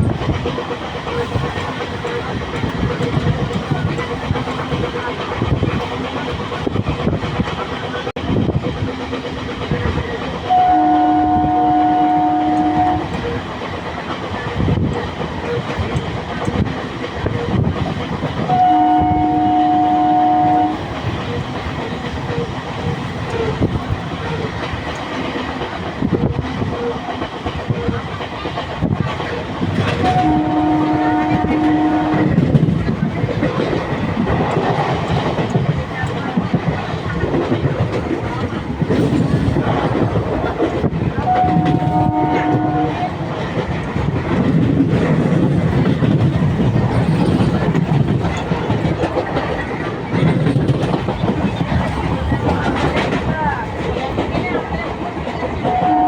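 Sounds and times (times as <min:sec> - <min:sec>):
train wheels rumbling on track: 0:00.0 - 0:56.0
train horn two-tone chord: 0:10.5 - 0:13.2, 0:18.5 - 0:20.8, 0:30.0 - 0:32.4, 0:41.3 - 0:43.1, 0:55.7 - 0:56.0.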